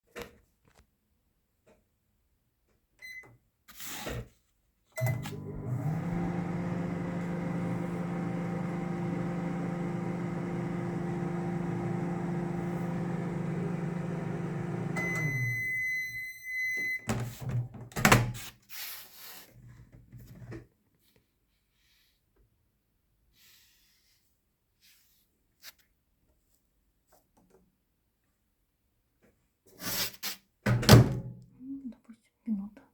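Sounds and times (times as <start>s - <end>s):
long microwave beep: 5.0s - 5.6s, 11.4s - 17.2s
microwave clunks: 5.0s - 15.7s
microwave oven humming: 5.0s - 16.2s
microwave keypad beep: 14.9s - 17.1s.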